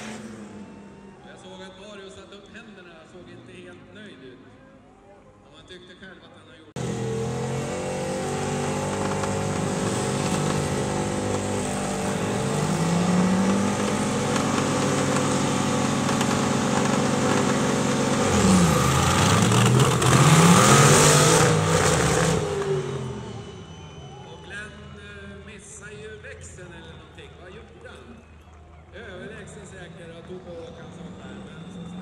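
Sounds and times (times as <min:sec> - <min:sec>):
racing tractor engines revving: 0:00.0 - 0:02.4, 0:06.8 - 0:27.2, 0:29.0 - 0:32.0
commentator speaking: 0:24.3 - 0:28.1, 0:29.0 - 0:32.0.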